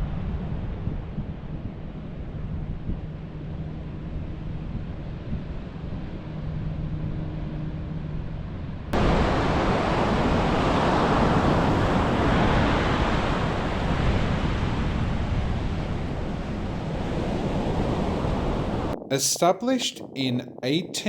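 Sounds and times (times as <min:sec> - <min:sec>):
wind noise on microphone: 0:00.0 - 0:21.0
ocean surf: 0:09.0 - 0:21.0.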